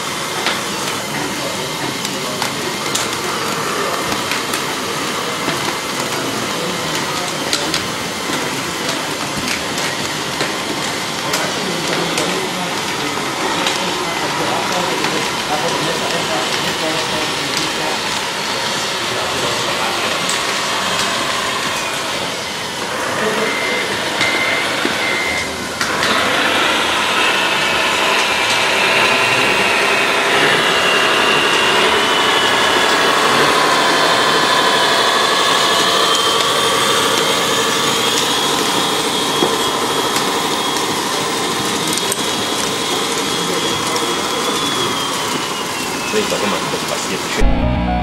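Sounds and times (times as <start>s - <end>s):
model excavator mechanical whine: 11.0s - 46.2s
short beeps: 47.4s - 48.0s.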